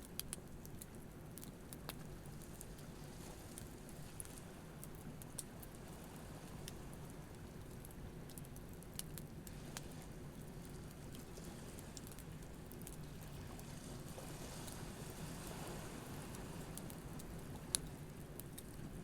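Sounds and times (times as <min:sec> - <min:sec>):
campfire crackling and popping: 0:00.1 - 0:02.1, 0:06.6 - 0:11.0.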